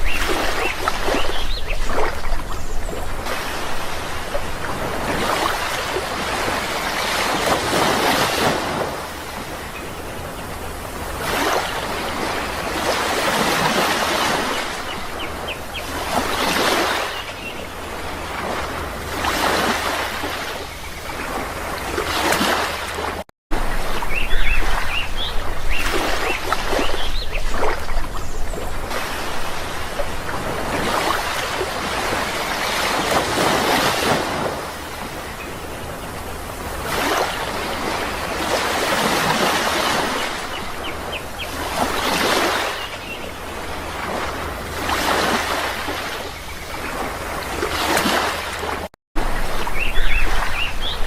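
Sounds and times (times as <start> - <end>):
sea waves washing in: 0.0 - 51.0
bird chirps: 49.7 - 51.0.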